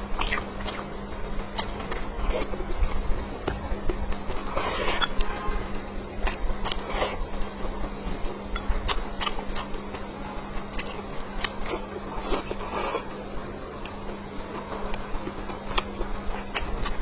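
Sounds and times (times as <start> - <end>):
chewing and mouth noises: 0.1 - 5.3, 6.2 - 7.6, 8.6 - 10.0, 10.7 - 13.2, 14.9 - 17.0.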